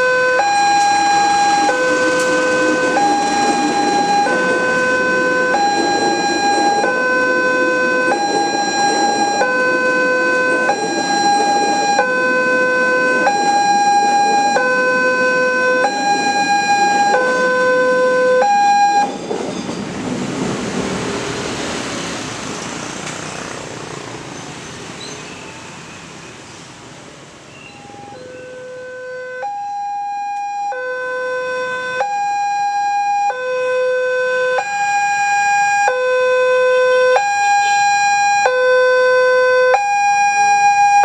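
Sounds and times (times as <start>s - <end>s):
level crossing alarm tones: 0.0s - 19.5s, 27.6s - 41.0s
passing train rumble: 0.0s - 28.8s.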